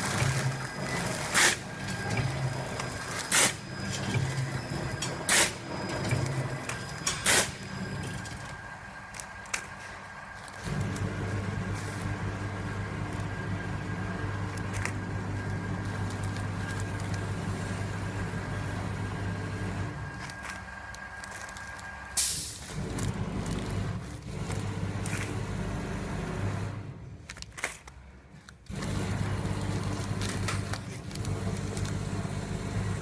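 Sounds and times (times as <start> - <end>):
machine motor hum: 0.0 - 27.0, 28.7 - 33.0
loud burst of hiss: 22.2 - 22.7.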